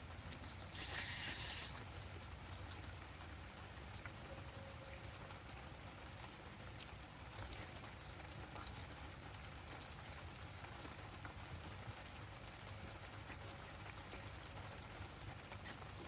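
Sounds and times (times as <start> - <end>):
light ticks: 13.3 - 14.8.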